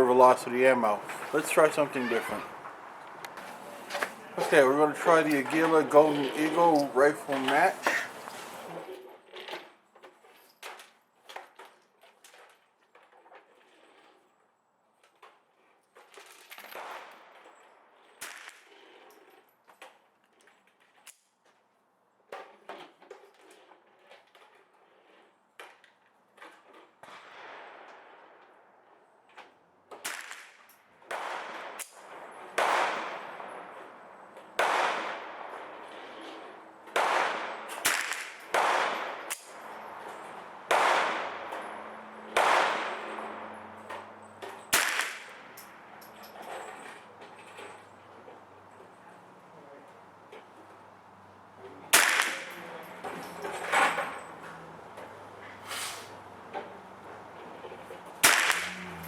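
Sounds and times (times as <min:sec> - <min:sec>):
rifle shots cracking: 0:30.1 - 0:33.7, 0:34.6 - 0:35.8, 0:36.9 - 0:41.7, 0:42.3 - 0:43.2, 0:44.7 - 0:45.6, 0:51.9 - 0:52.8, 0:58.2 - 0:59.0.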